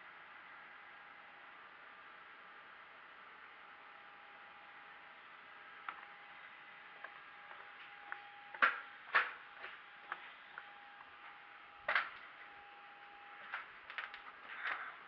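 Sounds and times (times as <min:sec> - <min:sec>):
steady hum and hiss: 0:00.0 - 0:15.0
sharp knocks and clicks: 0:08.6 - 0:09.4.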